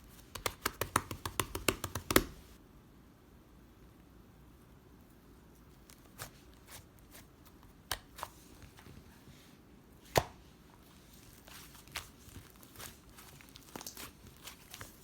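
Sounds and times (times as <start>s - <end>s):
sharp taps and clicks: 0.3s - 2.4s.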